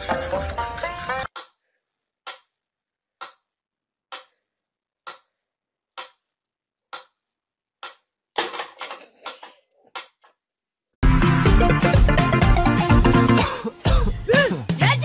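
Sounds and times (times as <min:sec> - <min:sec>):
loud music: 0:11.0 - 0:15.0.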